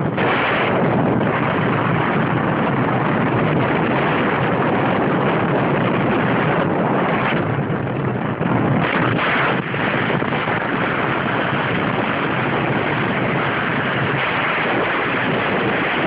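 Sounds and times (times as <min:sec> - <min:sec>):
road noise from moving vehicle: 0:00.0 - 0:16.0
wind buffeting microphone: 0:00.0 - 0:16.0.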